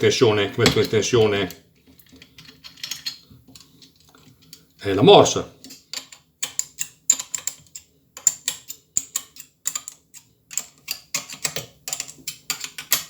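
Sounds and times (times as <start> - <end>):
metallic clicks and taps: 5.6 - 13.0.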